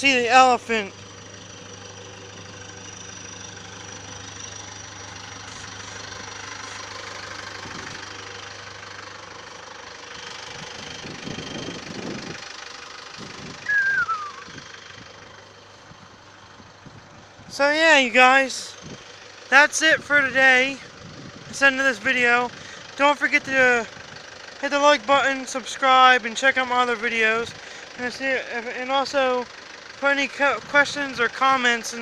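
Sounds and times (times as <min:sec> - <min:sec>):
low engine rumble: 0:00.0 - 0:32.0
loud falling squeal: 0:13.6 - 0:14.5.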